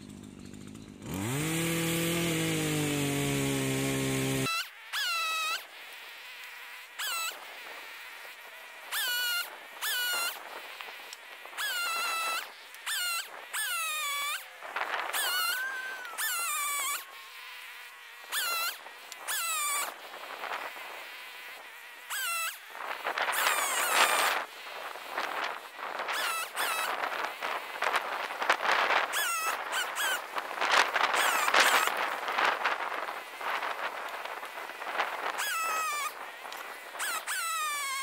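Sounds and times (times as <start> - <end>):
small chainsaw: 0.0 - 38.0
bird calling high sliding notes: 11.6 - 20.0.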